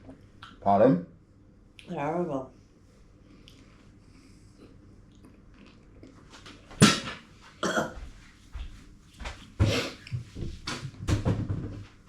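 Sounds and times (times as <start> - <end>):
person coughing: 7.6 - 8.0.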